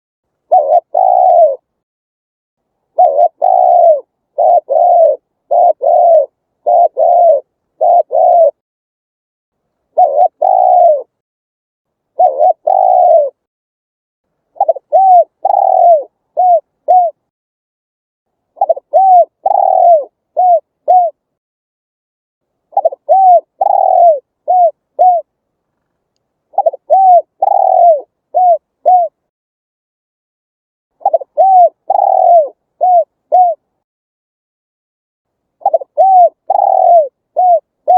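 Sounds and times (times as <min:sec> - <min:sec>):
dove cooing: 0:00.4 - 0:01.7, 0:02.9 - 0:08.6, 0:09.9 - 0:11.2, 0:12.1 - 0:13.5, 0:14.6 - 0:17.3, 0:18.6 - 0:21.2, 0:22.7 - 0:25.3, 0:26.5 - 0:29.2, 0:31.0 - 0:33.7, 0:35.6 - 0:37.9.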